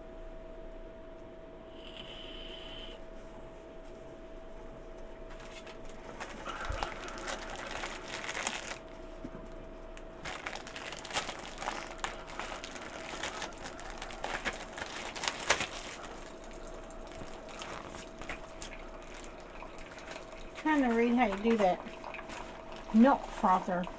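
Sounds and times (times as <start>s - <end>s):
faint steady hum: 0.0s - 23.9s
crinkling and rustling handling noise: 5.2s - 23.9s.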